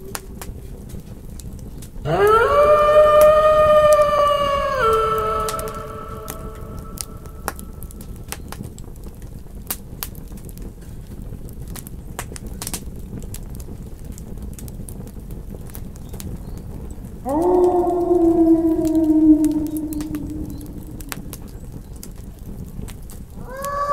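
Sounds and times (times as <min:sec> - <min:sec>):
campfire crackling and popping: 0:00.0 - 0:02.1, 0:02.8 - 0:23.9
wolf howling: 0:02.1 - 0:08.0, 0:17.2 - 0:21.5, 0:23.4 - 0:23.9.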